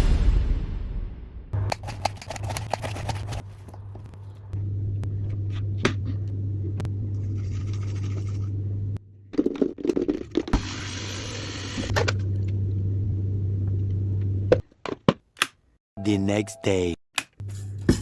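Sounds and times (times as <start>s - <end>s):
low electrical hum: 3.4s - 9.4s, 11.3s - 14.6s.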